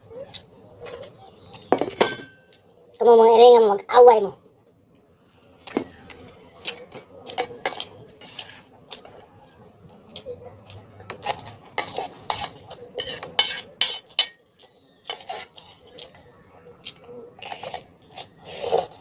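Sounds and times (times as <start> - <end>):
cutlery clinking on a dish: 1.7 - 2.6, 11.8 - 14.4.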